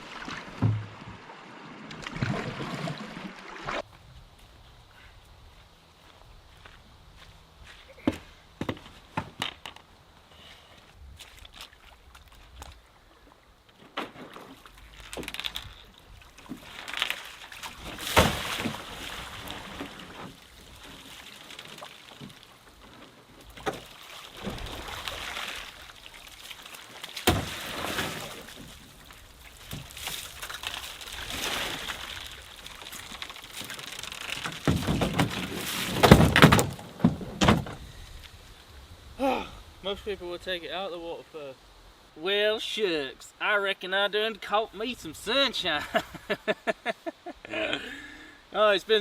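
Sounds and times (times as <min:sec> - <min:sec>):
water sloshing and pouring: 0:00.0 - 0:03.9, 0:14.2 - 0:37.2.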